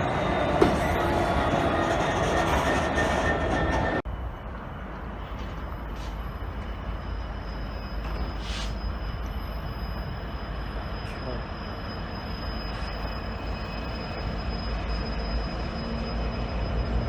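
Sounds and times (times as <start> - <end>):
low train rumble: 0.0 - 17.0
train running loudly: 0.0 - 17.0.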